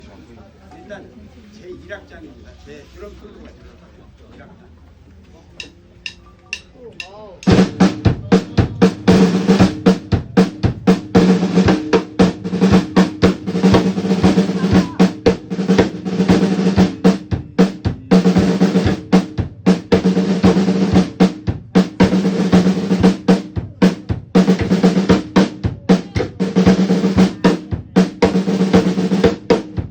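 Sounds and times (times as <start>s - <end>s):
snare drum strokes and rolls: 7.4s - 29.9s.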